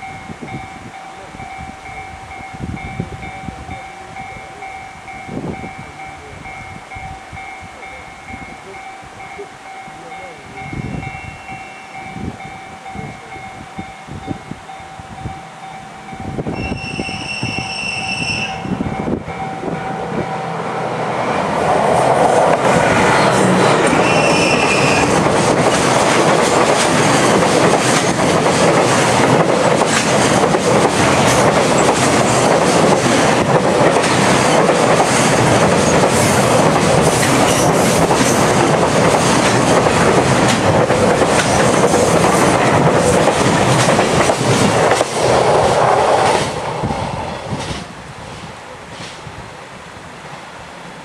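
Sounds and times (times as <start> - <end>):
freight train rushing past: 0.0 - 51.0
wheels clattering over rail joints: 23.6 - 46.5.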